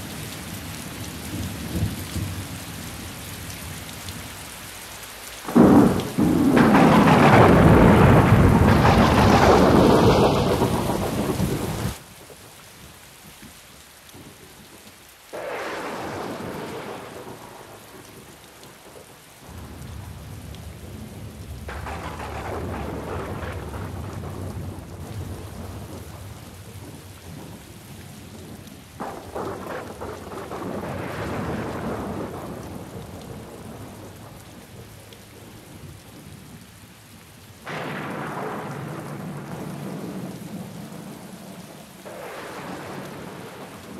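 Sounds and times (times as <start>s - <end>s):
steady rain: 0.0s - 43.9s
thunder rumbling: 5.4s - 12.0s, 15.3s - 35.0s, 37.6s - 43.9s.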